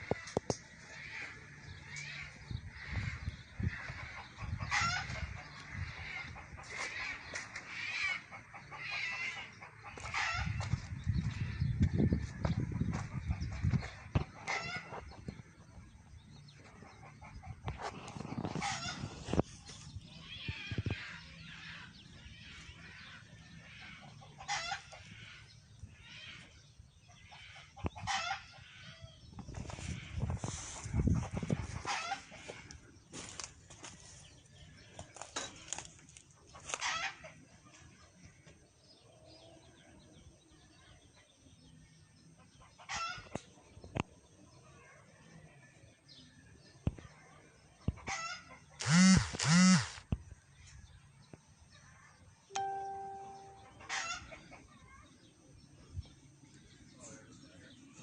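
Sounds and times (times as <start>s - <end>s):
chickens clucking and squawking: 0.0s - 49.9s, 53.7s - 55.2s
short loud chicken calls: 48.1s - 50.0s.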